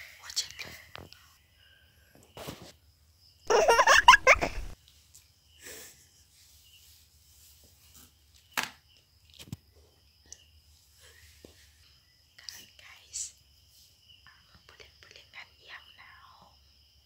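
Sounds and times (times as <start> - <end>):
person laughing: 3.5 - 4.8.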